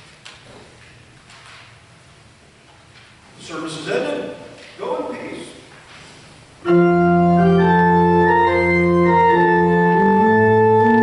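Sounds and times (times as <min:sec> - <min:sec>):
organ chords: 0:06.6 - 0:11.0.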